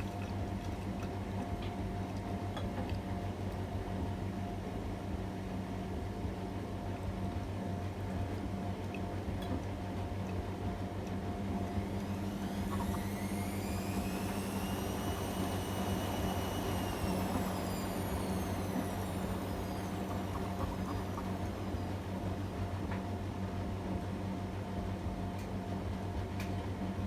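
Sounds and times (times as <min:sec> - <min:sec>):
washing machine hum: 0:00.0 - 0:27.0
drum motor whine: 0:10.5 - 0:27.0.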